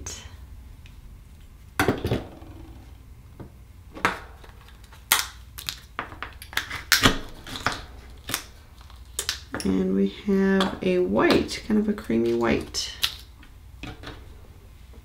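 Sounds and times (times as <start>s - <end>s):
oyster shells clicking: 5.1s - 9.7s.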